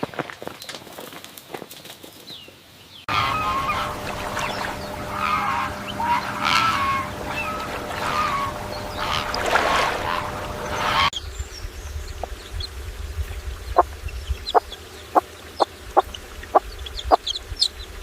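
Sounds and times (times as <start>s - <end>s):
fowl calling: 3.1s - 11.2s
steady low hum: 3.1s - 18.0s.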